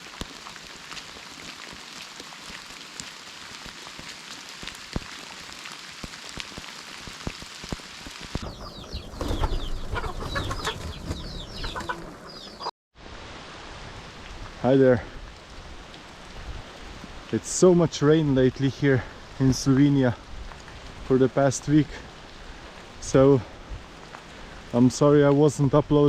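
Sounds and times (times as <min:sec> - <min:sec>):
raindrops ticking: 0:00.0 - 0:08.4
steady rain: 0:00.0 - 0:08.5, 0:13.0 - 0:26.0
birds chirping: 0:08.4 - 0:12.7.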